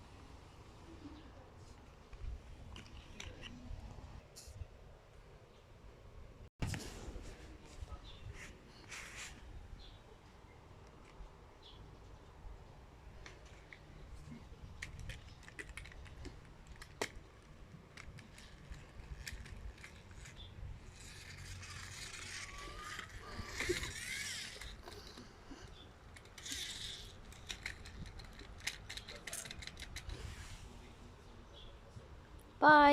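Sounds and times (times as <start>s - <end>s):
plastic toy pieces rattling: 14.8s - 25.2s, 26.1s - 30.2s.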